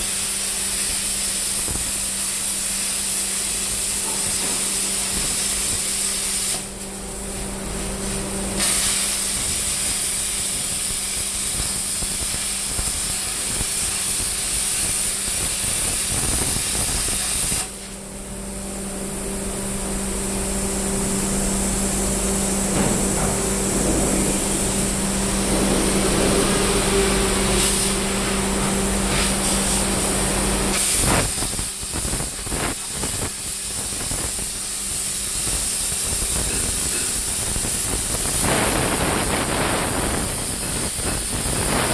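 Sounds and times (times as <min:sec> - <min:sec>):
plasma cutter torch hissing: 0:00.0 - 0:41.9
steady hum: 0:06.5 - 0:10.0, 0:17.5 - 0:32.8.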